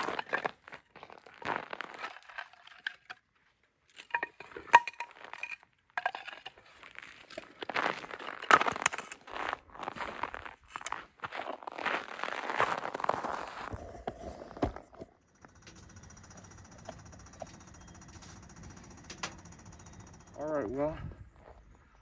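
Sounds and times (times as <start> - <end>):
rustling and crinkling of items: 0.0 - 19.2
clinks: 15.1 - 20.9
sharp ringing clink: 15.3 - 20.8.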